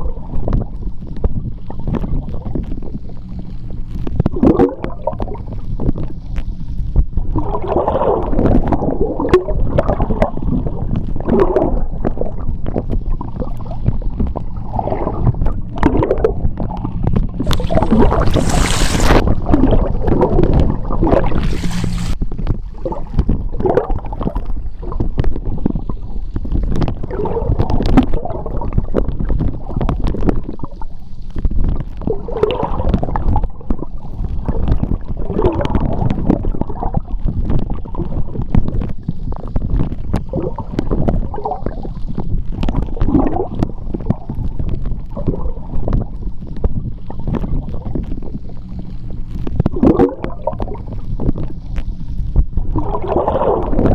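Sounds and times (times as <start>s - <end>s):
bubbles gurgling and clicking: 0.0s - 53.9s
underwater rumble of moving water: 0.0s - 53.9s
brief hiss: 17.4s - 19.3s, 21.1s - 22.2s.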